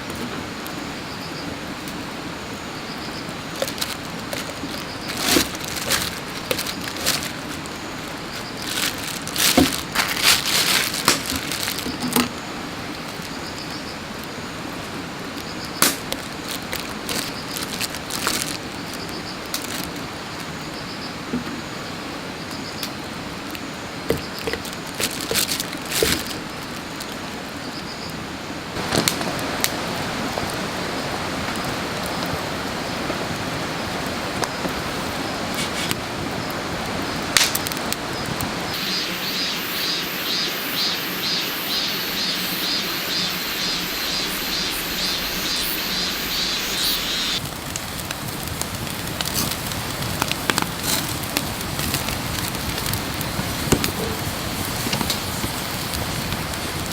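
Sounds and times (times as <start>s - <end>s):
wood fire crackling and popping: 3.2s - 20.7s, 28.8s - 38.8s, 44.3s - 56.9s
steady hiss: 28.6s - 56.9s
rhythmic high pulsing: 38.8s - 47.4s.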